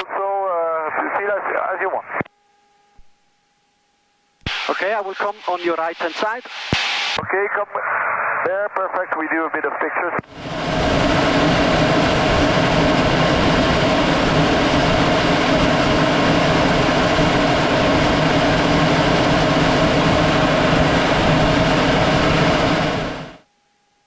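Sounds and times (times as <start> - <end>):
aircraft engine drone: 4.5 - 8.4, 10.2 - 23.4.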